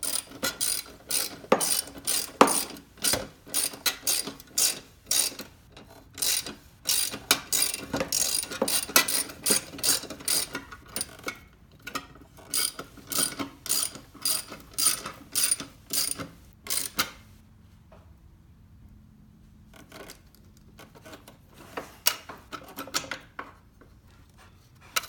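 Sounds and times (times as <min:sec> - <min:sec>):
ratchet wrench clicking: 0:00.0 - 0:05.5, 0:06.2 - 0:11.2, 0:12.5 - 0:17.2.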